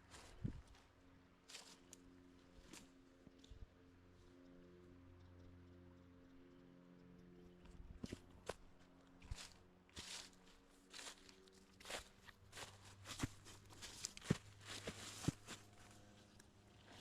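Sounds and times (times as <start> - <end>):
crunching footsteps on trail: 0.0 - 0.9, 1.5 - 2.9, 8.0 - 17.0.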